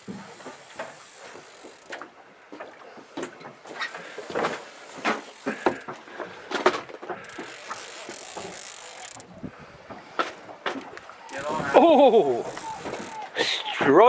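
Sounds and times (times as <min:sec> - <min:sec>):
knocks and clatter of gear: 0:00.0 - 0:09.3.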